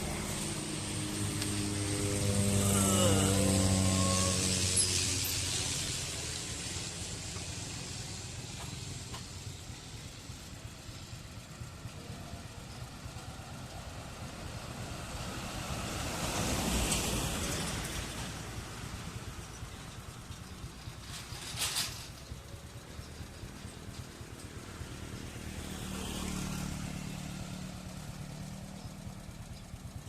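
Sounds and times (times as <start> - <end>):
distant turboprop engines: 0.0 - 30.0.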